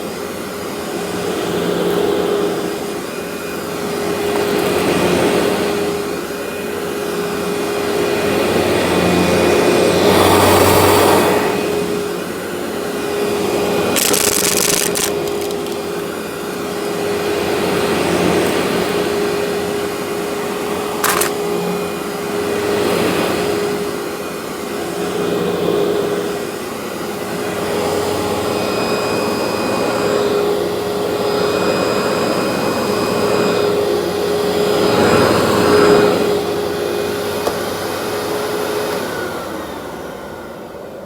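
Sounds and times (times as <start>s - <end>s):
vacuum cleaner motor whine: 0.0s - 41.0s
sharp click: 21.0s - 21.4s.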